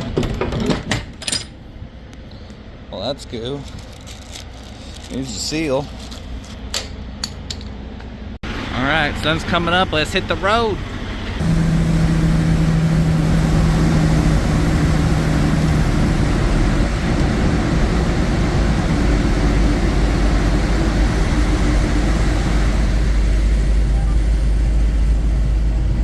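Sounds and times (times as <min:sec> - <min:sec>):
road rumble: 0:00.0 - 0:26.0
diesel truck engine drone: 0:08.0 - 0:26.0
clear engine tone: 0:08.5 - 0:26.0.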